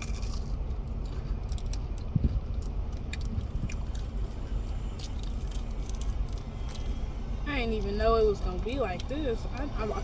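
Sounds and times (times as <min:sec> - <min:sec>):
car rumbling: 0:00.0 - 0:10.0.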